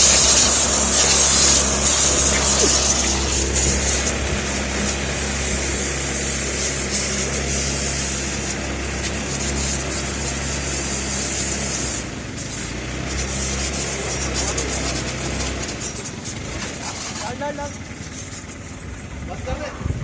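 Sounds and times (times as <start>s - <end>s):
motor hum: 0.0s - 16.7s
pressure washer spray hissing: 0.0s - 19.0s.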